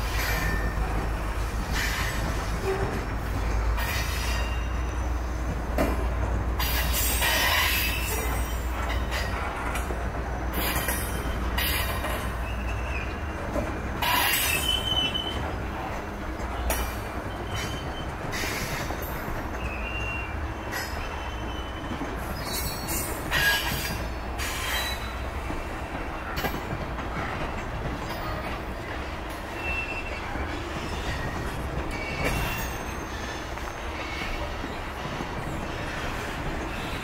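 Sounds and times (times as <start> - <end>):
freight cars rumbling on rails: 0.0 - 37.0
high-pitched wheel squeals: 14.0 - 15.4, 19.6 - 25.2, 29.5 - 33.4.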